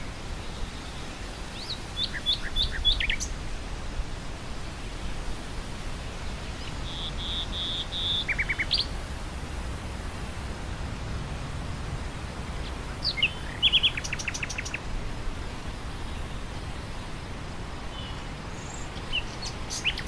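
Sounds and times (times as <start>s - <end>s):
low wind noise: 0.0s - 20.0s
nightingale singing: 1.5s - 3.4s, 6.6s - 8.9s, 13.0s - 14.8s, 17.9s - 20.0s.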